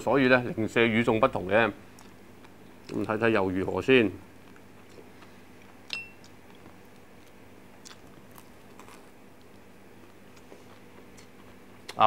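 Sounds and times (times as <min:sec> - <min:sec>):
low steady hum: 0:00.0 - 0:12.0
man chewing crisp food: 0:01.9 - 0:03.0, 0:04.4 - 0:12.0.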